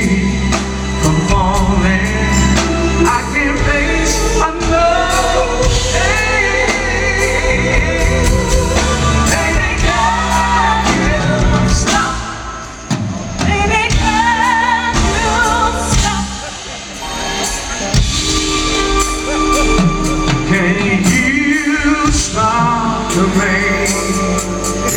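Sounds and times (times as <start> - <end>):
band playing r and b ballad: 0.0 - 24.9
person singing: 13.5 - 24.9.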